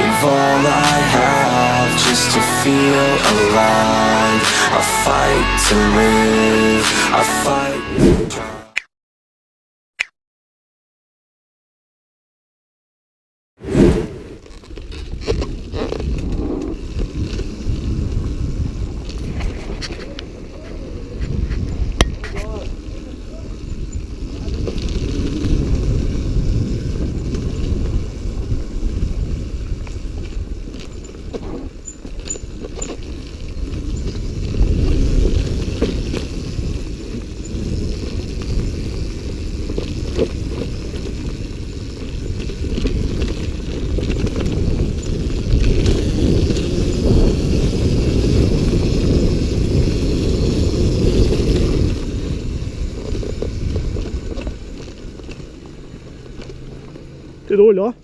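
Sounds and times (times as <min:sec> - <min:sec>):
dirt bike engine: 0:00.0 - 0:08.7, 0:22.4 - 0:58.0.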